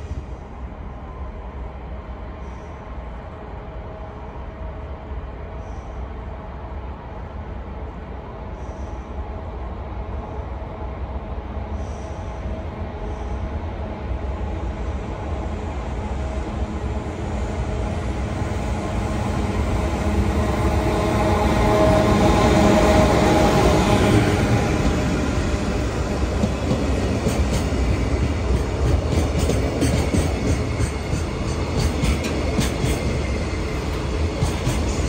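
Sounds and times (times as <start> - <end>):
freight locomotive passing: 0.0 - 35.0.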